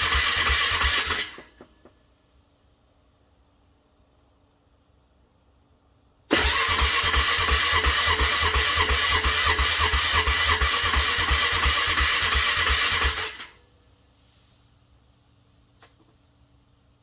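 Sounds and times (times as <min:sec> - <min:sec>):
car engine cranking: 0:06.3 - 0:13.4.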